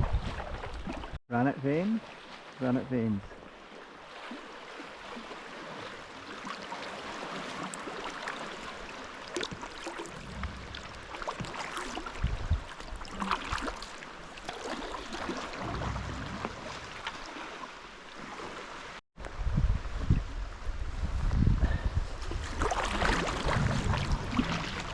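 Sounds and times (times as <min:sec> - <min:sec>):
water splashing around kayak: 0:00.0 - 0:24.9
short low rumbles: 0:10.1 - 0:11.3.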